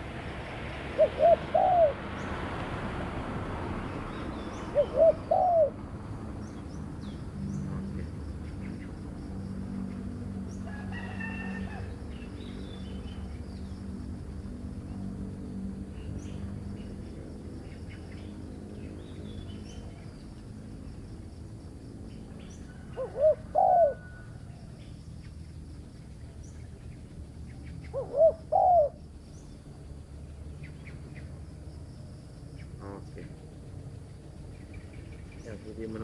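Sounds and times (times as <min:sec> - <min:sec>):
dove cooing: 0:00.0 - 0:02.2, 0:04.6 - 0:05.9, 0:22.7 - 0:24.4, 0:27.8 - 0:29.0
small birds chirping: 0:24.8 - 0:36.0.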